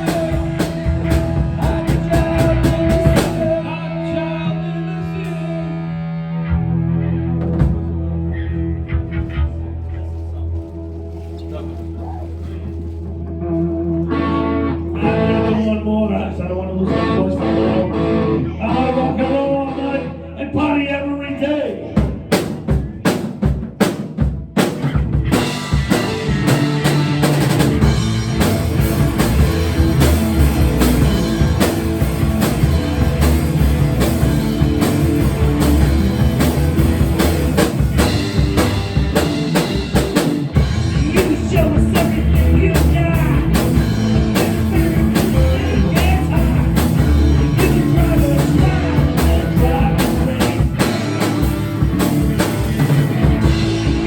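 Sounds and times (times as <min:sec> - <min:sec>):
drum kit beat: 0:00.0 - 0:03.8, 0:22.0 - 0:54.0
bass guitar: 0:00.0 - 0:54.0
loud rock music: 0:00.0 - 0:54.0.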